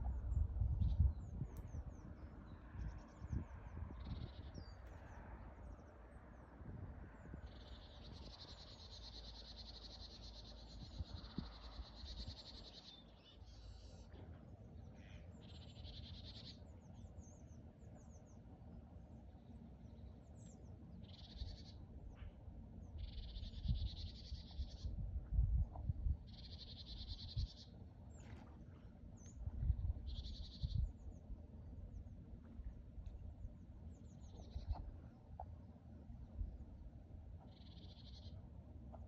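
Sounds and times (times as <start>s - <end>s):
bird calling buzzy trills: 15.0s - 16.7s, 22.9s - 25.0s, 26.2s - 27.8s, 37.4s - 38.6s.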